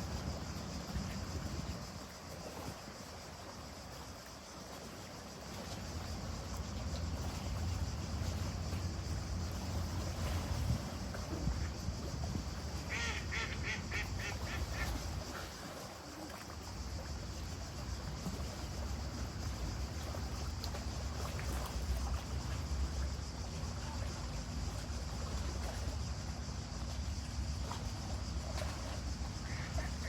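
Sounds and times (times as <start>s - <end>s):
duck quacking: 12.9s - 14.9s.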